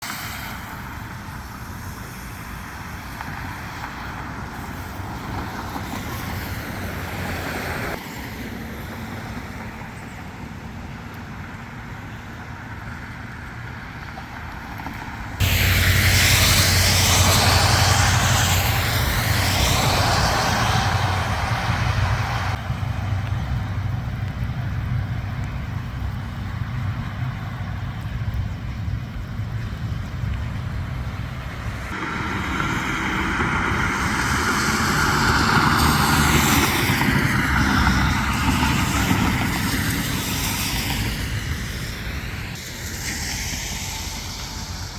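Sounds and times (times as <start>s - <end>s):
road traffic passing: 0.0s - 44.9s
loud steady rushing noise: 15.0s - 44.9s.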